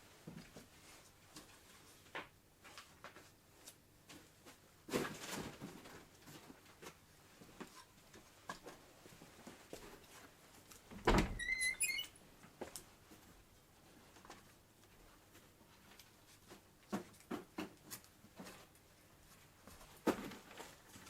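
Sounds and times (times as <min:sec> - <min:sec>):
high squeaks: 0:11.4 - 0:12.1.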